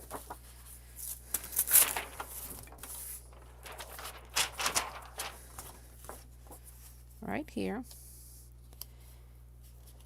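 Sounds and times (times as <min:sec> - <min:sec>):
cardstock paper rustling and sliding: 0:00.0 - 0:07.0.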